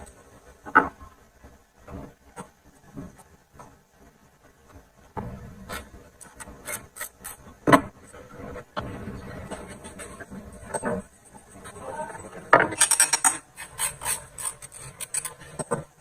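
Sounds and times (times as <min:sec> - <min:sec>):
rubbing and scraping strokes: 0:13.4 - 0:16.0.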